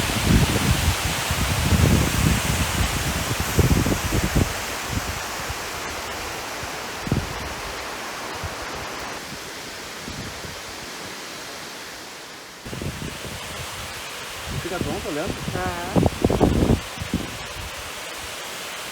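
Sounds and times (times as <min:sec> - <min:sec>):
water rushing from dam: 0:00.0 - 0:18.9.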